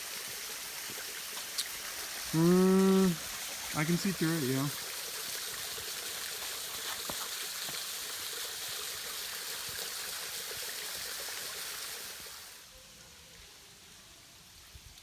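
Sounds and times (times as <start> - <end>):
water drips and splashes: 0.0 - 12.7
waterfall rushing: 2.2 - 4.9.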